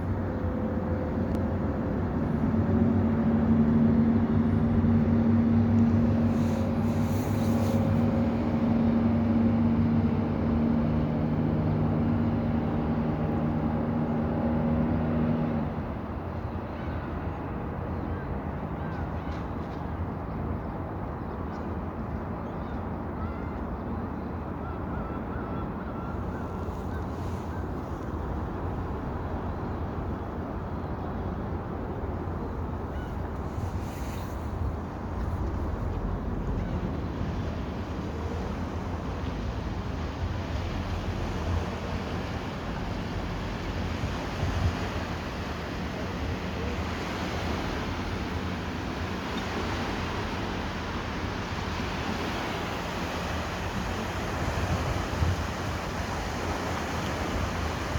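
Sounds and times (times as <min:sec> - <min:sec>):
waves washing at water's edge: 0:00.0 - 0:16.3, 0:26.4 - 0:57.9
wind: 0:00.0 - 0:57.9
water rushing: 0:34.6 - 0:57.9.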